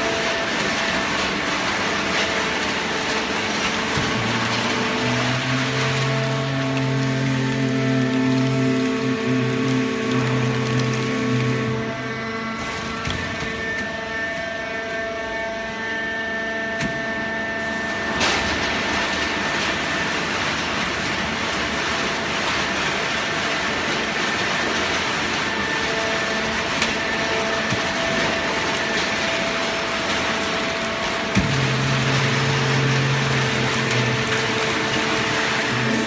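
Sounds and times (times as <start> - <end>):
hydraulic baler whining: 0.0 - 36.0.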